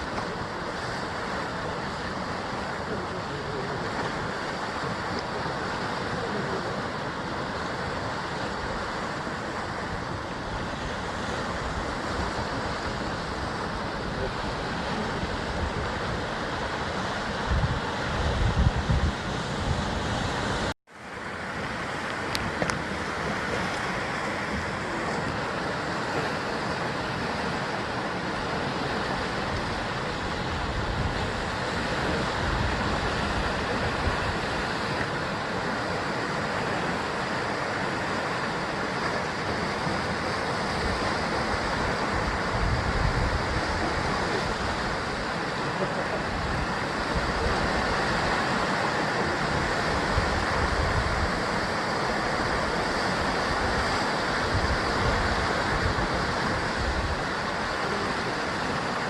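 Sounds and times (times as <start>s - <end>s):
sea waves breaking on rocks: 0.0s - 59.0s.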